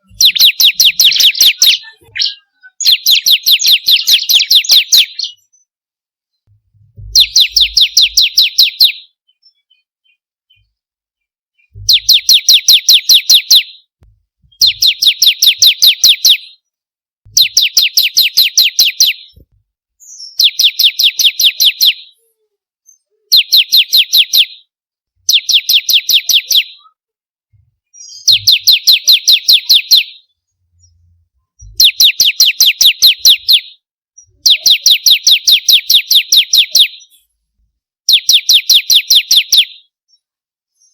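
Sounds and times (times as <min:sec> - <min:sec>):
bird singing high sharp chirps: 0:00.0 - 0:05.5, 0:07.0 - 0:09.8, 0:11.6 - 0:13.9, 0:14.5 - 0:16.6, 0:17.3 - 0:19.4, 0:20.0 - 0:22.2, 0:22.9 - 0:24.7, 0:25.3 - 0:26.9, 0:28.0 - 0:30.3, 0:31.6 - 0:37.2, 0:38.1 - 0:39.9.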